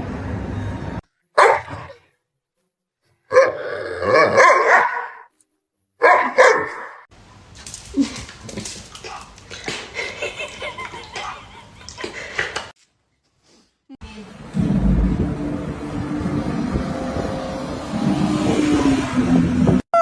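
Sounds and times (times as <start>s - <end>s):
dog barking: 1.4s - 2.0s, 3.3s - 5.3s, 6.0s - 7.0s
small scattered noises: 7.2s - 13.9s.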